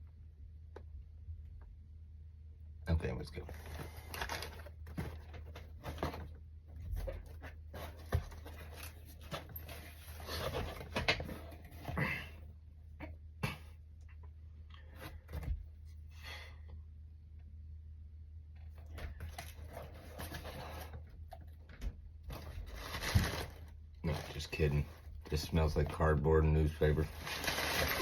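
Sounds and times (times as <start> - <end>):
cardboard and paper rustling: 3.4 - 12.0, 18.8 - 28.0.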